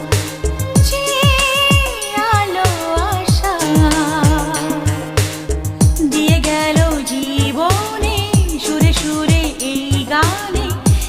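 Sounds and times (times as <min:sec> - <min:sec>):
person singing a melody: 0:00.8 - 0:05.4, 0:06.0 - 0:11.0
deep bass kicks: 0:03.2 - 0:07.0.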